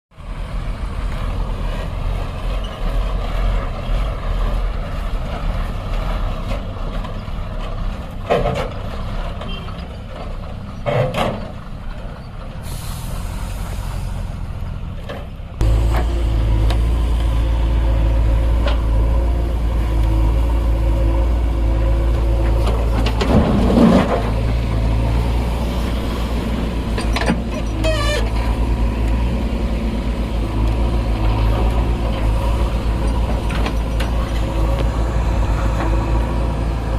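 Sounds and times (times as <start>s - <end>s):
heavy diesel engines running: 0.1s - 36.9s
air release hiss: 12.6s - 13.9s.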